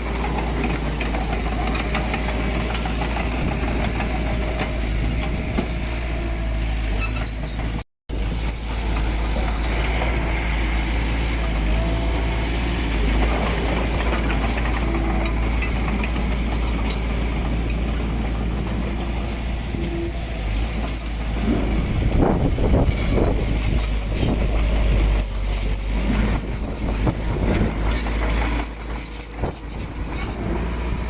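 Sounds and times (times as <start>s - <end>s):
diesel earthmoving machinery rumbling: 0.0s - 31.0s
small high squeaks: 6.9s - 9.8s, 23.0s - 30.5s.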